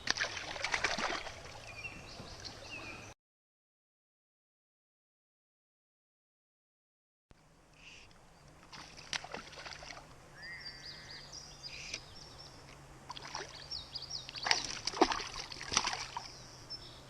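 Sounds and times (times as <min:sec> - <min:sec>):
fish splashing water: 0:00.0 - 0:01.6, 0:08.7 - 0:10.0, 0:13.1 - 0:13.6, 0:14.3 - 0:16.3
birds singing: 0:01.5 - 0:03.1, 0:10.3 - 0:17.0.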